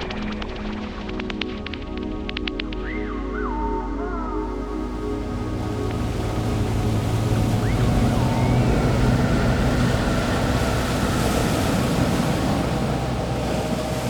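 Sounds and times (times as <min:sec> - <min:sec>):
low sustained tones: 0:02.9 - 0:14.0
steady rushing noise: 0:04.6 - 0:14.0.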